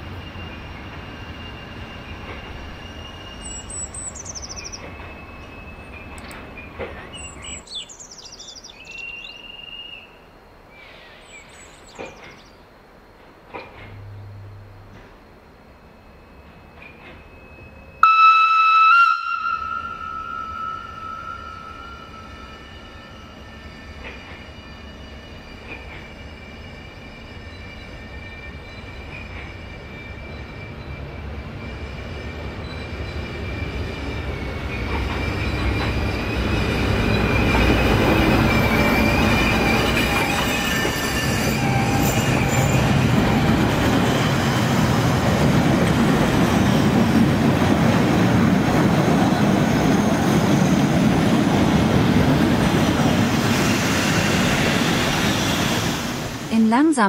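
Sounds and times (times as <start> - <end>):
high wheel squeal: 0.0 - 6.1, 19.2 - 45.3, 48.1 - 56.5
train wheels rumbling on rails: 0.0 - 9.9, 11.3 - 18.0, 19.2 - 56.9.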